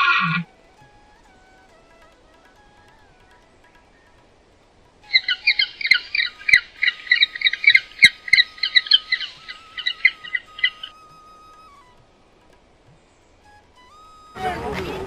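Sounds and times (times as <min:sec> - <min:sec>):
bird squawking rapidly: 0:00.0 - 0:00.5, 0:05.1 - 0:11.1.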